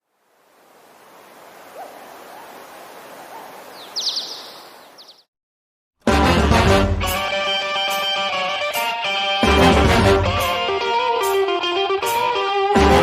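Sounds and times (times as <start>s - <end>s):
outdoor ambience hiss: 0.0s - 5.2s
bird chirps: 3.3s - 5.3s
music: 6.0s - 13.0s.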